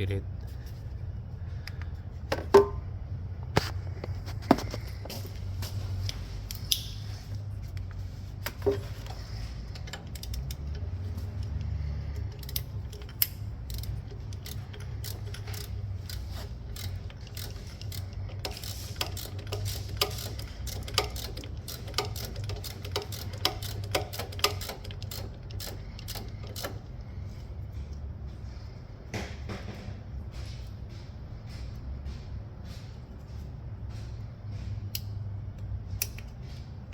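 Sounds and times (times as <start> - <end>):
steady low hum: 0.0 - 36.9
socket wrench ratchet clicking: 8.5 - 27.0.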